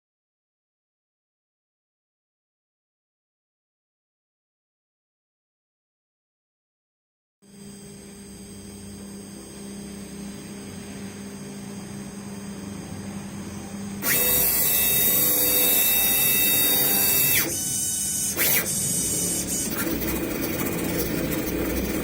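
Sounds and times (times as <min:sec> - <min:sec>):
machine spindle whine: 0:07.5 - 0:22.0
bit engraving metal: 0:14.0 - 0:22.0.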